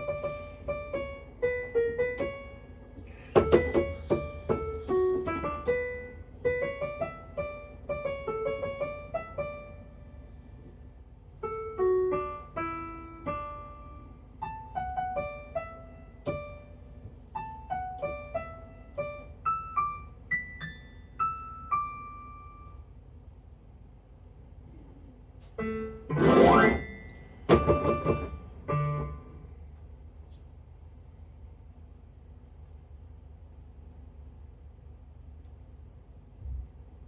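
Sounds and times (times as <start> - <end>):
keyboard piano melody: 0.0 - 10.5, 11.3 - 23.0, 25.6 - 29.6.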